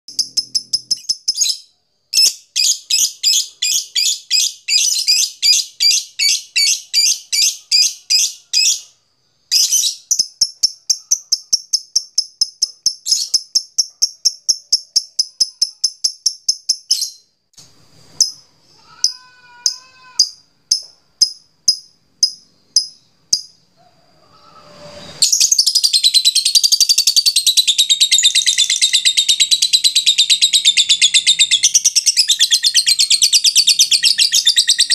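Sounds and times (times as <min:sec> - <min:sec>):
lovebird chattering: 0:09.5 - 0:17.2.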